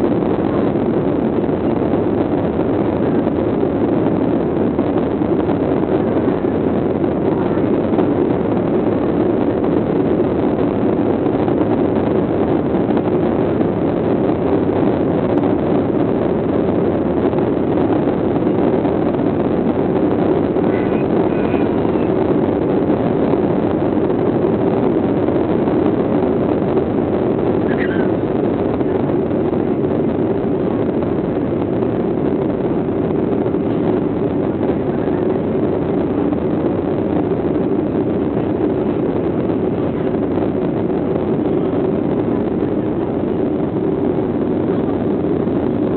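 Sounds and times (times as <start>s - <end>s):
jet engines droning in cabin: 0.0s - 45.9s.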